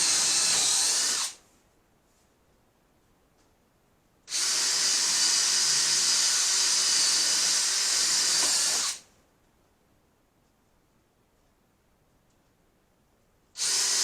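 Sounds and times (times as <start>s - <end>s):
power drill whirring: 0.0s - 1.4s, 4.3s - 9.0s, 13.6s - 14.0s.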